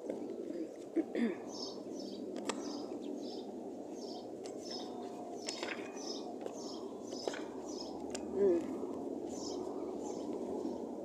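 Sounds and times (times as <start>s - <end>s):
bird chirping: 1.4s - 8.6s, 9.3s - 10.9s.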